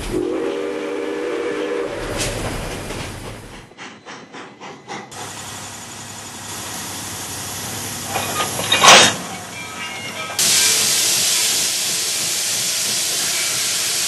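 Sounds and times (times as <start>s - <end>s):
sharp steam exhaust beats: 0.0s - 9.1s, 10.3s - 14.0s
steam hissing: 0.0s - 14.0s
steam whistle chord: 0.1s - 2.3s.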